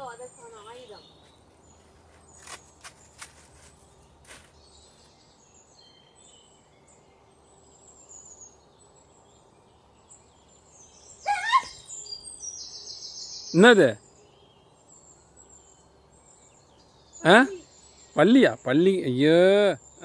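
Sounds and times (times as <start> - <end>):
small birds chirping: 0.0 - 20.0
loud pitched bird call: 11.2 - 12.2.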